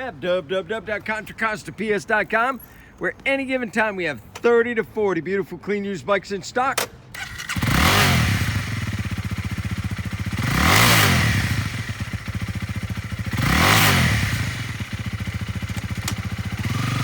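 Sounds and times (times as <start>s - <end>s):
motorcycle engine idling and revving: 7.1s - 17.0s.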